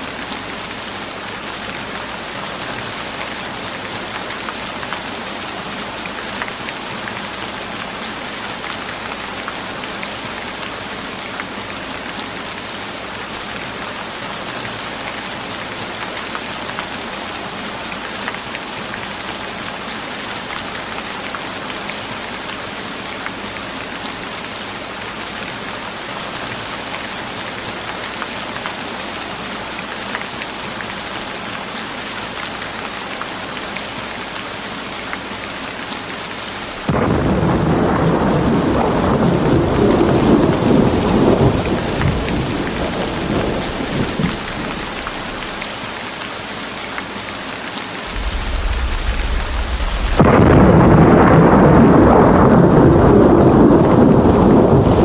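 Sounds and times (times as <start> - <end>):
steady rain hissing: 0.0 - 55.0.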